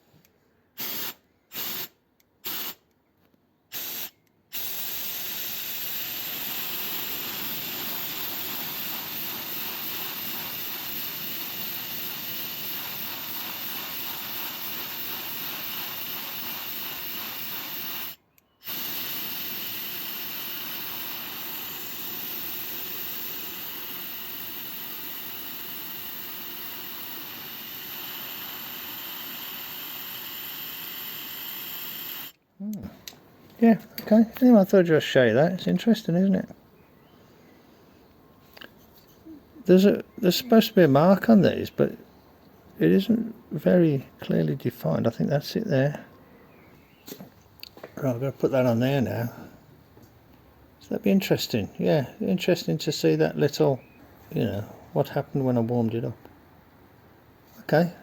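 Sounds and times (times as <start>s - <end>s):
heat gun blowing hot air: 0.8s - 2.8s, 3.7s - 32.4s.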